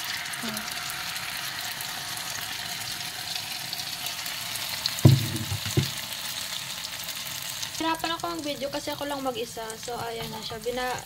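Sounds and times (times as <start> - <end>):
egg mixture sizzling in frying pan: 0.0 - 11.0
dull thump: 5.0 - 6.0.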